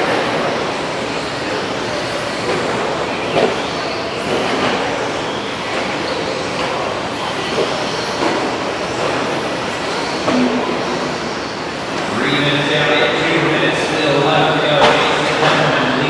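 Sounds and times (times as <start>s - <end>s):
rc trucks motors and tyres: 0.1s - 10.3s.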